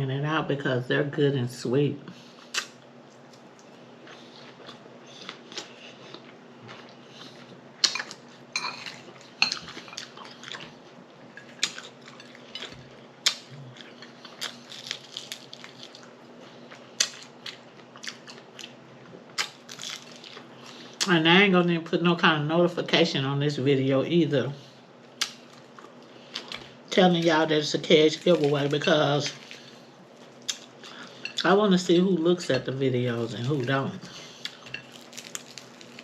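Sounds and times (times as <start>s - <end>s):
faint steady hum: 0.0s - 36.0s
person chewing with mouth smacks: 2.4s - 8.3s, 34.4s - 36.0s.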